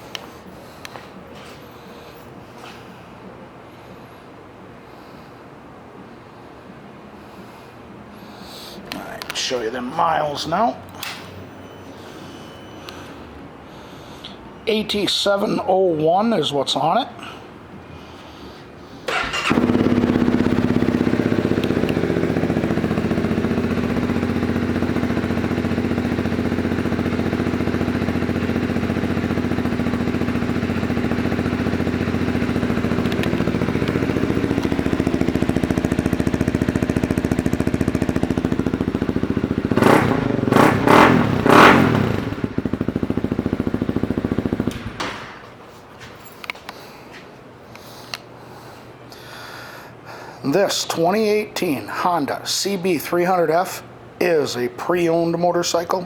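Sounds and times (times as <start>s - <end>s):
motorcycle engine starting and idling: 19.0s - 45.6s.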